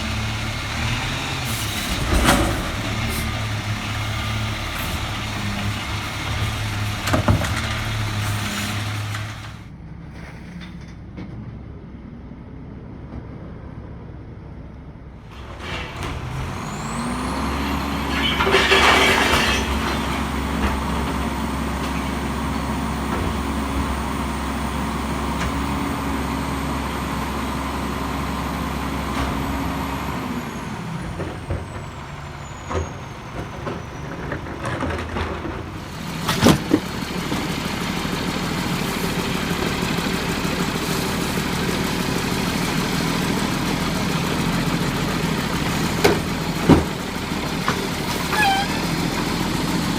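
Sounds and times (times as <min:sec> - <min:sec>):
truck diesel engine revving: 0:00.0 - 0:09.7, 0:15.2 - 0:49.9.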